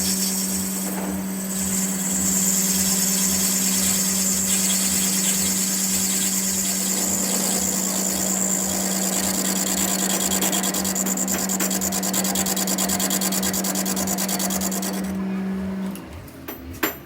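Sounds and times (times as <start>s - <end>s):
machine tool scraping metal: 1.8s - 15.1s.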